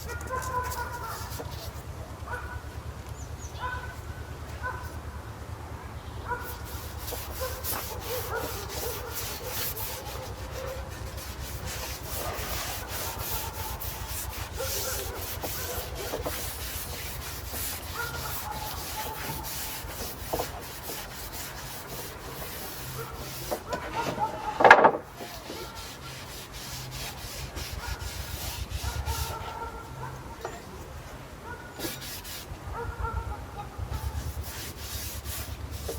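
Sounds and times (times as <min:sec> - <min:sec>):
brush bristles scraping on wood: 0:00.0 - 0:01.9, 0:06.4 - 0:30.2, 0:31.8 - 0:32.5, 0:34.0 - 0:35.9.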